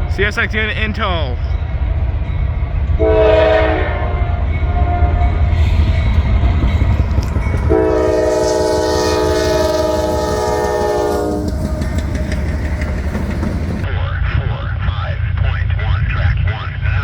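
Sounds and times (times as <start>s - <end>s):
passing train rumble: 0.0s - 14.6s
locomotive air horn chord: 3.0s - 6.2s, 7.6s - 13.9s.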